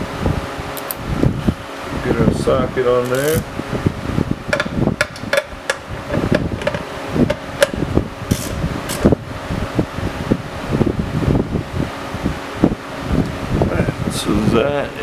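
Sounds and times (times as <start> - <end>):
fan humming: 0.0 - 15.0
ratchet clicking on bolt: 3.0 - 3.5, 8.3 - 9.1.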